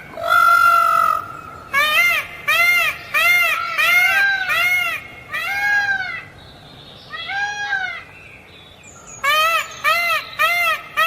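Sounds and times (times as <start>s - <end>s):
peafowl calling: 0.0s - 6.4s, 9.0s - 11.0s.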